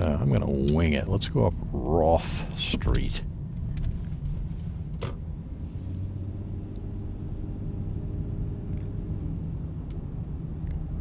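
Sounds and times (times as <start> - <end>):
car engine rumbling: 0.0 - 11.0
road noise: 0.0 - 11.0.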